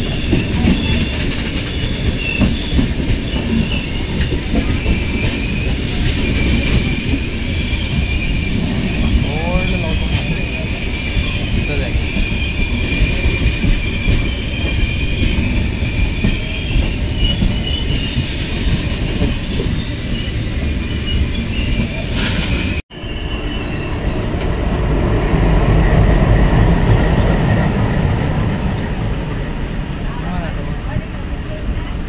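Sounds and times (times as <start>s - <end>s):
wheel squealing against rail: 0.0s - 24.6s
freight train wheels rumbling: 0.0s - 32.0s.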